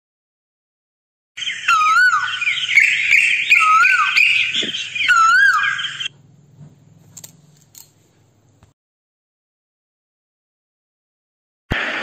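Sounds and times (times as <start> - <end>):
bird whistling swooping note: 1.4 - 6.1
birds chattering chorus: 1.4 - 6.2.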